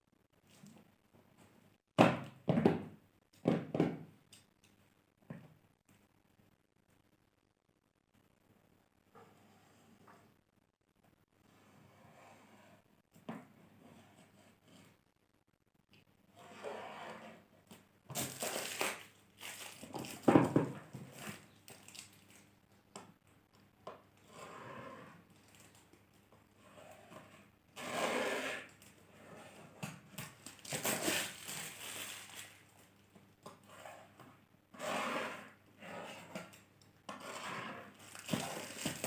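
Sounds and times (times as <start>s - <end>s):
packaging crinkling and tearing: 18.2s - 20.3s, 21.1s - 22.5s, 30.2s - 32.9s, 38.0s - 39.0s.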